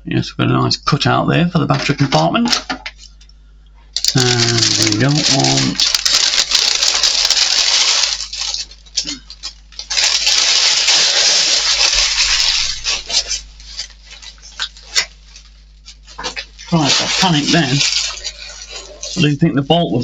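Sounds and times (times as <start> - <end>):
packaging rustling and rattling: 4.0 - 19.2.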